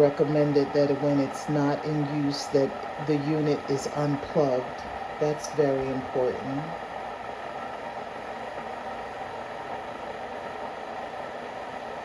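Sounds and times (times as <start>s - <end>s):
electric kettle heating water: 0.0s - 12.0s.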